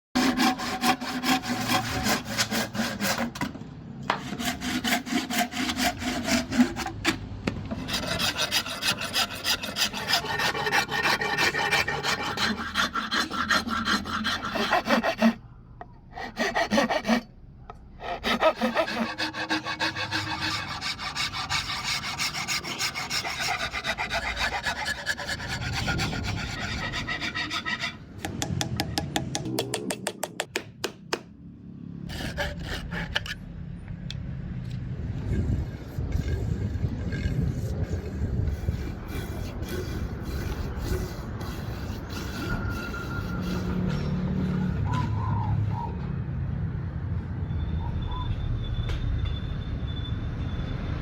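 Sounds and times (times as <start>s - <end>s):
hand file rasping wood: 0.2s - 3.5s, 4.1s - 15.4s, 16.1s - 17.3s, 18.0s - 28.0s, 32.1s - 33.4s, 37.7s - 44.6s.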